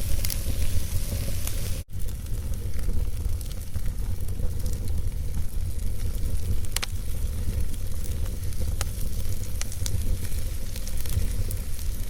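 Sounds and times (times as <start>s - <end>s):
fire crackle: 0.0s - 12.0s
log fire rumbling: 0.0s - 12.0s.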